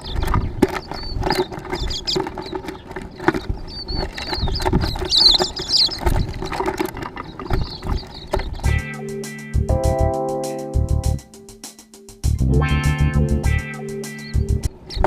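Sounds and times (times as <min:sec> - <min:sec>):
sharp taps and knocks: 0:00.0 - 0:08.8
small birds chirping: 0:00.0 - 0:12.3, 0:13.4 - 0:15.0.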